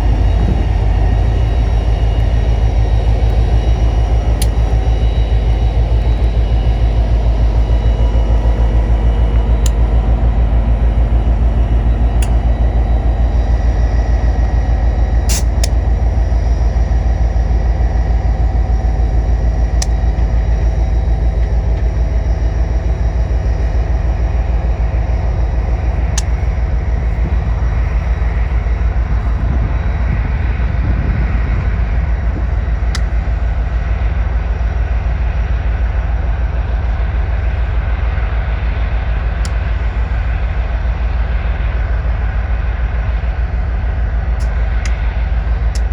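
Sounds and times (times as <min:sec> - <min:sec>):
sharp clicks: 0:00.0 - 0:12.9, 0:15.3 - 0:15.8
train rumbling past: 0:00.0 - 0:32.8.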